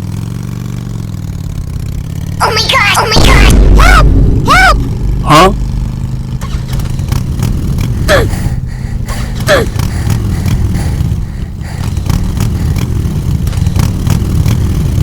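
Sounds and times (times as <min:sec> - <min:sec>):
small engine rumbling: 0:00.0 - 0:15.0.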